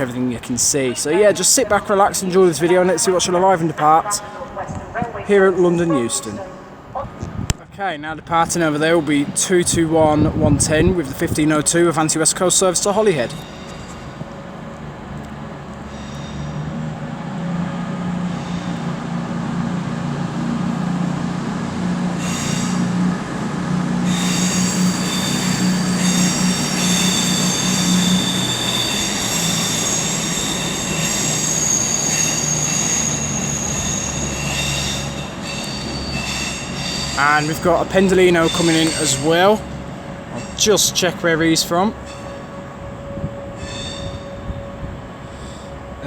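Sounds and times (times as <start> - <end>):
diesel train engines running: 0.0 - 46.0
high-pitched wheel squeal: 15.8 - 16.8, 22.2 - 23.0, 24.0 - 39.7, 43.2 - 45.7.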